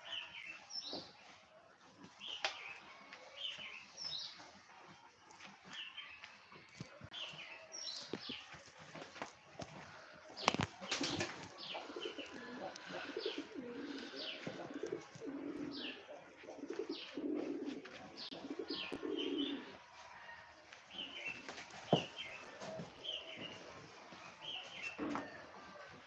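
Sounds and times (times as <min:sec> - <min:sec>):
small birds chirping: 0:00.0 - 0:19.9, 0:20.9 - 0:25.9
pigeons cooing: 0:10.3 - 0:19.8.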